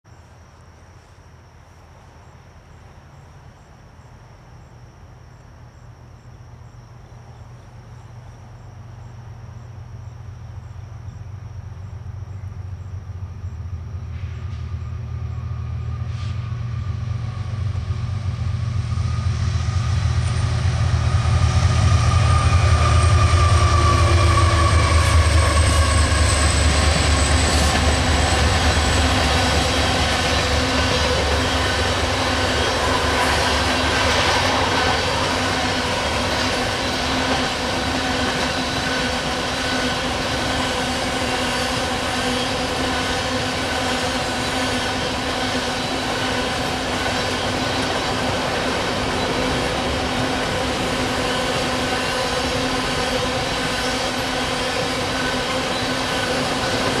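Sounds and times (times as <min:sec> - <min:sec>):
diesel locomotive engine rumble: 0:00.1 - 0:57.0
wheel and rail noise: 0:00.1 - 0:57.0
tank cars rolling past: 0:14.0 - 0:57.0.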